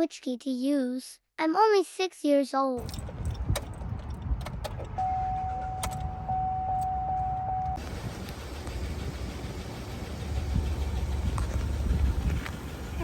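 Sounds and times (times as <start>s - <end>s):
keys clicking and jingling: 2.8s - 5.0s
vehicle engine rumble: 2.8s - 13.0s
steady warning tone: 4.9s - 13.0s.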